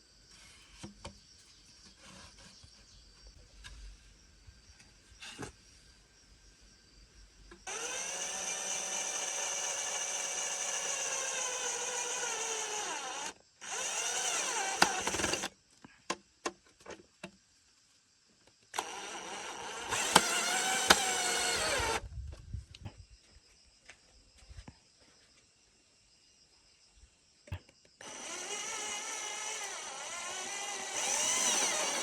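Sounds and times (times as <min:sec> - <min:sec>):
electric drill whining: 0:07.7 - 0:15.5, 0:18.8 - 0:22.0, 0:28.0 - 0:32.0.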